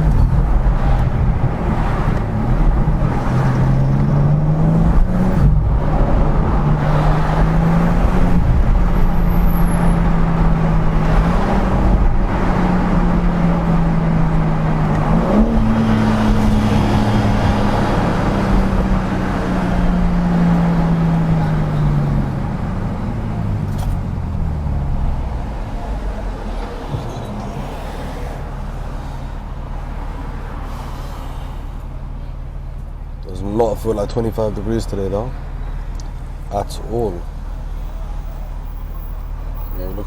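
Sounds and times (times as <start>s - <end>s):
car engine running: 0.0s - 40.0s.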